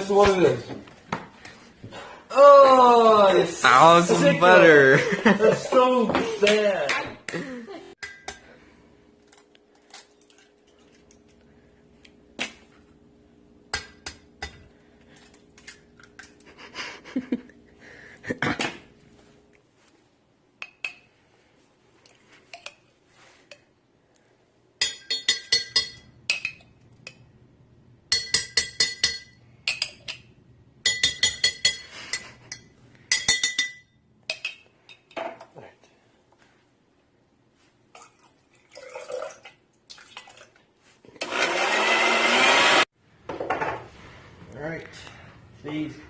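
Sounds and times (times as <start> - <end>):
utensils clinking on dishes: 8.0 - 8.6, 24.8 - 27.3, 28.1 - 35.4.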